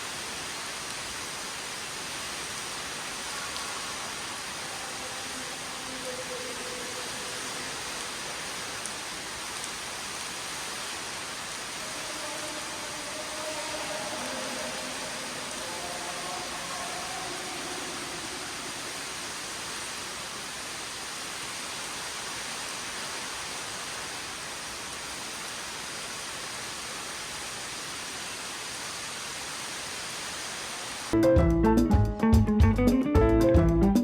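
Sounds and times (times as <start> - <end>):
cave waterfall rushing: 0.0 - 31.2.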